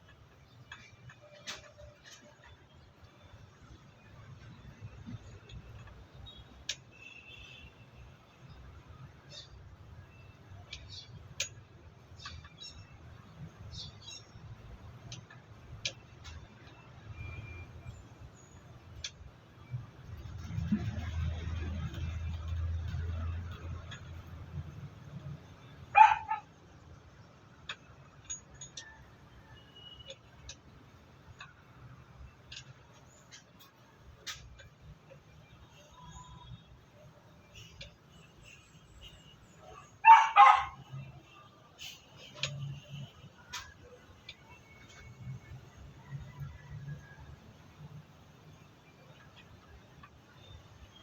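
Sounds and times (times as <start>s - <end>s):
sharp clicks and light knocks: 0.0s - 3.2s, 15.0s - 17.2s, 41.8s - 45.3s.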